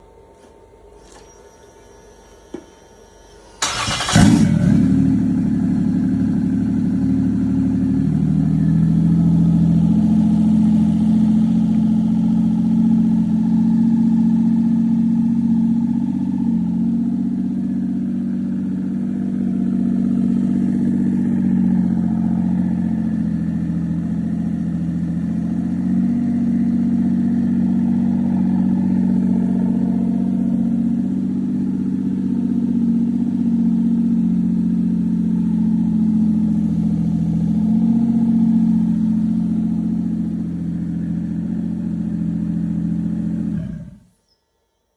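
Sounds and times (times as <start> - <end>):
car engine idling: 2.5 - 44.1
engine cranking: 3.6 - 4.6.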